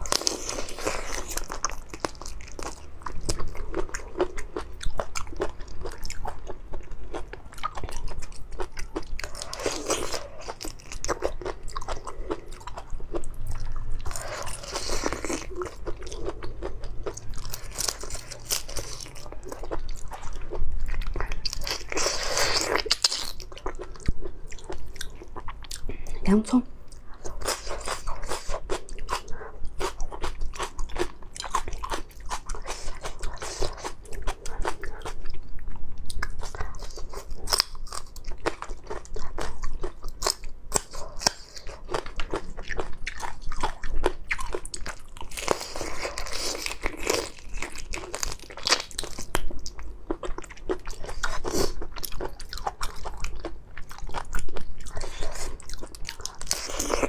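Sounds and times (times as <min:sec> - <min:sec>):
person biting and chewing: 0:07.1 - 0:25.8, 0:36.0 - 0:57.0.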